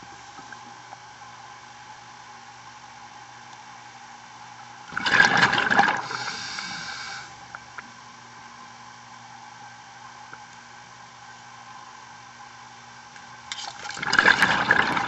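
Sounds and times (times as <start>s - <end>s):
steady hum: 0.0s - 15.0s
diver's exhaled bubbles rushing: 4.9s - 6.3s, 13.9s - 15.0s.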